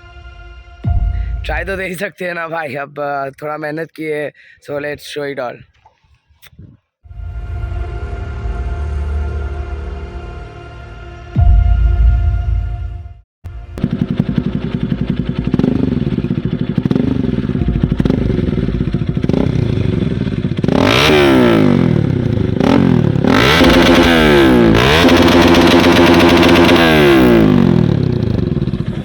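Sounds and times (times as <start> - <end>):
motorcycle engine revving: 13.5 - 29.0.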